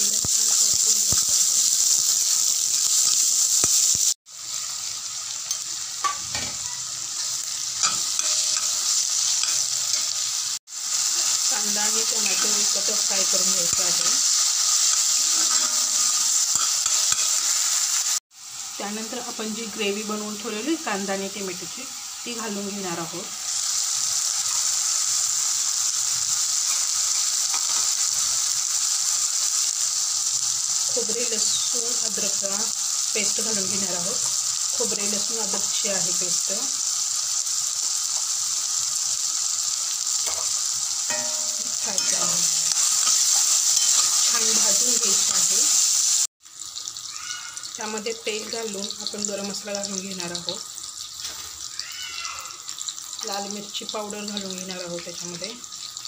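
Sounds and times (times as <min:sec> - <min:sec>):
onions sizzling in hot oil: 0:00.0 - 0:56.0
spatula stirring and scraping: 0:40.2 - 0:44.6.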